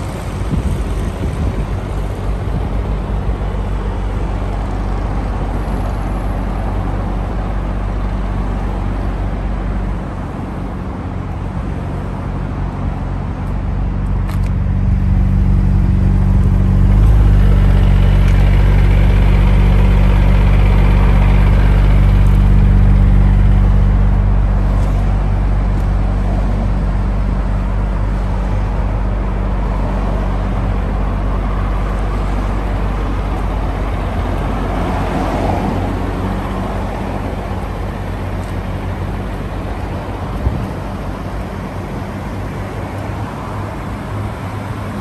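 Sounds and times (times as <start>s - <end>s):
car engine idling: 0.0s - 35.0s, 35.6s - 45.0s.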